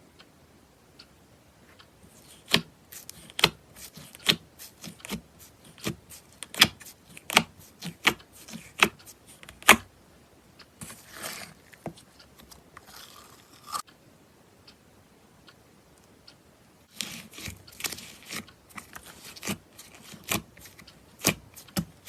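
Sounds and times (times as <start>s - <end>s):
slime rustling and scraping: 2.0s - 9.9s, 10.8s - 13.9s, 16.9s - 22.0s.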